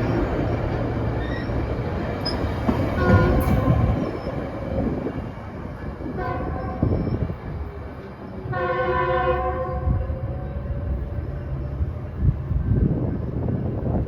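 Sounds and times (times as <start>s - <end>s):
passing train rumble: 0.0s - 14.0s
train horn blasts: 3.0s - 4.1s, 6.2s - 6.9s, 8.5s - 11.0s.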